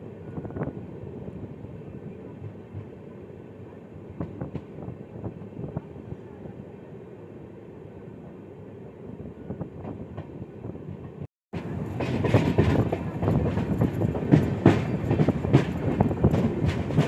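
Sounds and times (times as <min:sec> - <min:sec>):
train wheels rumbling on rail: 0:00.0 - 0:06.7, 0:09.1 - 0:17.0.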